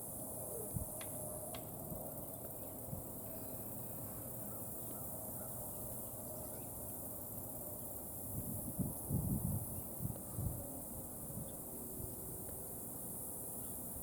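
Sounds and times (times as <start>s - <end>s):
high insect drone: 0.0s - 14.0s
distant bird call: 4.0s - 5.7s
wind buffeting microphone: 8.3s - 12.2s.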